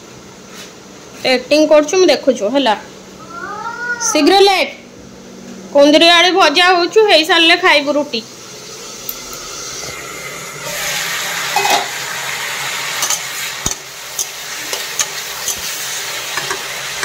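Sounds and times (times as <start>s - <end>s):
vegetables sizzling in oil: 7.2s - 17.0s.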